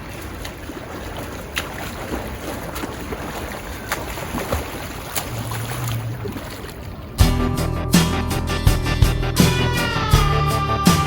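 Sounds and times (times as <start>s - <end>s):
rushing water: 0.0s - 7.3s.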